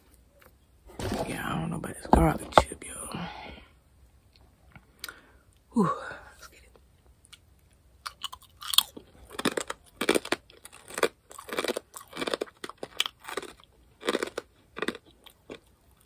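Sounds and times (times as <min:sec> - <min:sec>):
person crunching a hard chip: 0:08.0 - 0:16.0.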